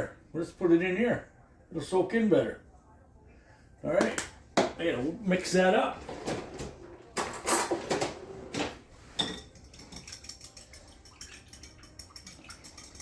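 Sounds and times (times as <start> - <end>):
utensil clinking against a cup: 9.2 - 13.0.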